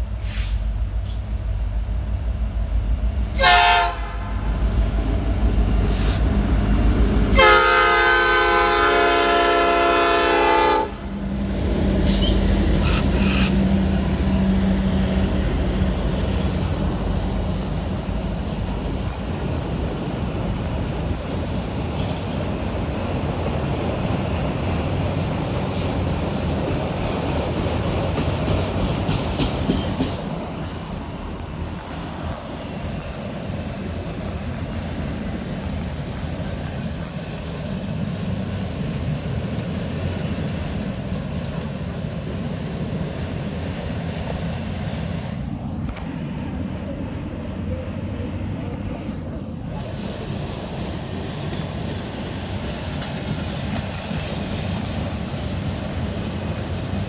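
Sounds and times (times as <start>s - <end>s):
locomotive engine passing: 0.8s - 57.0s
locomotive horn blasts: 3.4s - 4.4s, 7.3s - 11.1s
freight cars rumbling and clattering: 11.2s - 57.0s.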